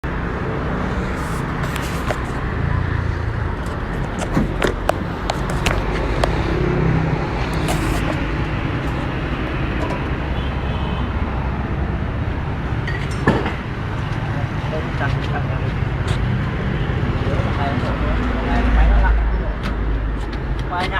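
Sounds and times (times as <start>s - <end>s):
concrete saw engine running: 3.2s - 9.5s
sharp clicks and knocks: 3.6s - 6.6s.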